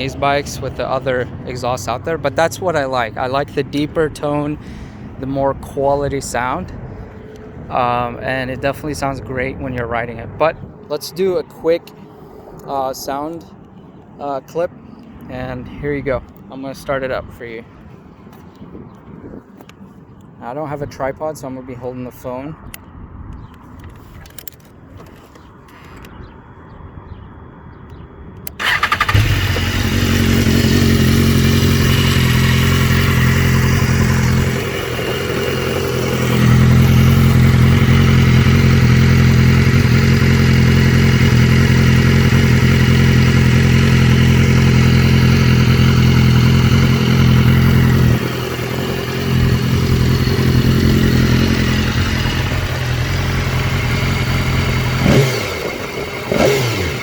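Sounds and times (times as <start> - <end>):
motorcycle engine starting and idling: 0.0 - 11.9, 27.9 - 57.0
engine revving: 28.5 - 57.0.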